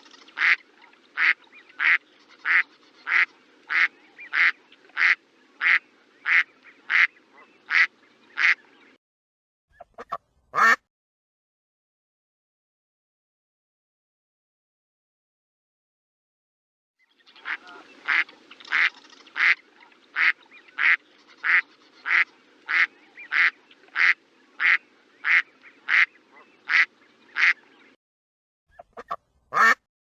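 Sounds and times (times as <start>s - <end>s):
duck quacking: 0.0s - 0.6s, 1.2s - 8.6s, 9.8s - 10.8s, 17.4s - 19.6s, 20.2s - 27.6s, 28.7s - 29.9s.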